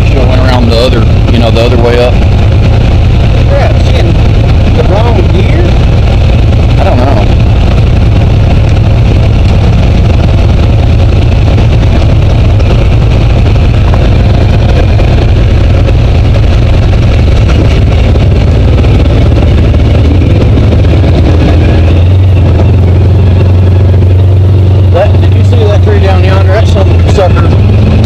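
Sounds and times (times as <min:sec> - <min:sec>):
vehicle engine droning: 0:00.0 - 0:28.0.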